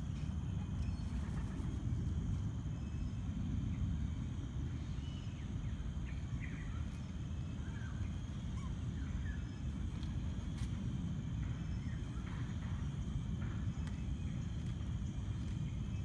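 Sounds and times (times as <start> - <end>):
low outdoor rumble: 0.0 - 16.0
faint bird chirps and whistles: 4.8 - 10.2.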